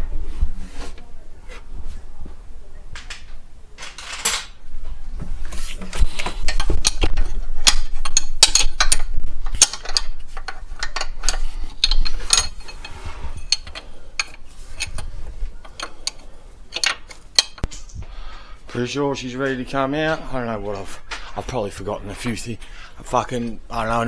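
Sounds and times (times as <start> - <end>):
metal tools clinking: 3.0 - 4.6, 5.6 - 17.9
socket wrench ratchet clicking: 15.7 - 17.7.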